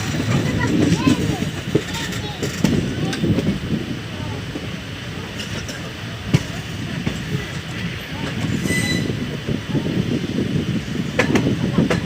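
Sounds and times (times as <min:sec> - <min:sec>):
train wheels rumbling and clattering: 0:00.0 - 0:12.0
high squeal: 0:08.6 - 0:09.2.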